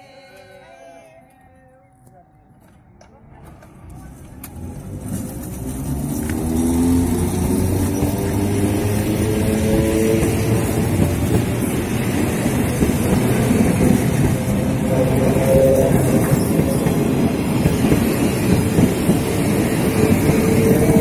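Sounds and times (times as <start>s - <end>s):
train wheels rumbling on rails: 3.4s - 21.0s.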